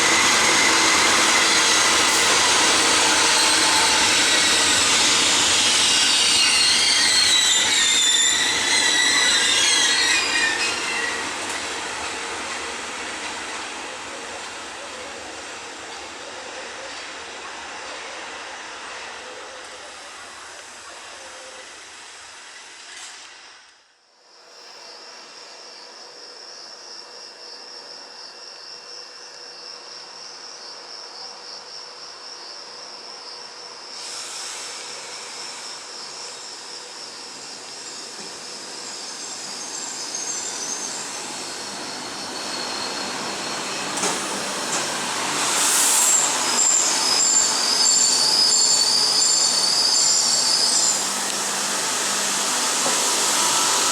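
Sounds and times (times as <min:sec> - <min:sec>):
train approaching on track: 0:00.0 - 0:53.9
train wheel squeal: 0:00.0 - 0:53.9
cicadas chirring: 0:00.1 - 0:13.6, 0:35.3 - 0:53.9.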